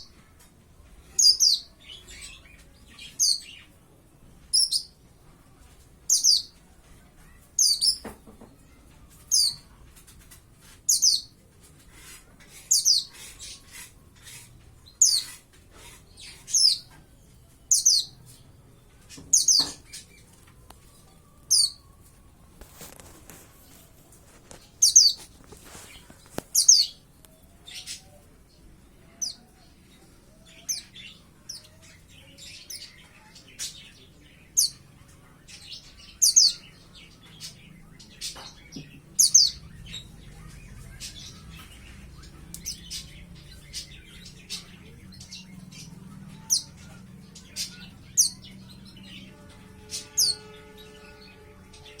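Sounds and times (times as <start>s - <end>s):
young bird chirping: 24.8s - 27.0s.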